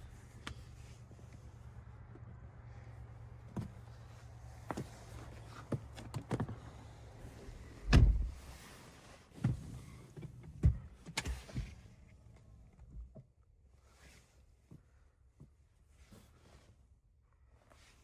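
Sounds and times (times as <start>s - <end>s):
clicks and knocks in car cabin: 4.6s - 6.6s, 7.5s - 8.5s, 9.4s - 11.9s
heavy thump: 7.8s - 8.4s.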